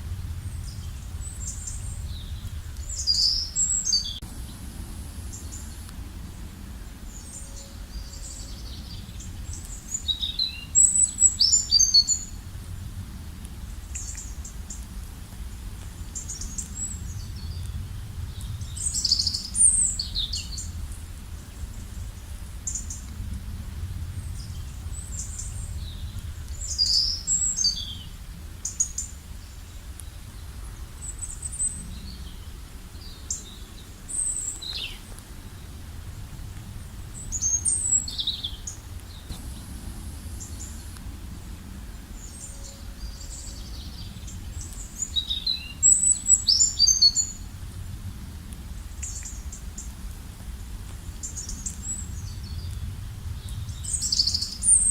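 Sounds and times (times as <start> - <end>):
low background rumble: 0.0 - 54.9
birds chirping: 0.2 - 5.9, 36.8 - 47.4.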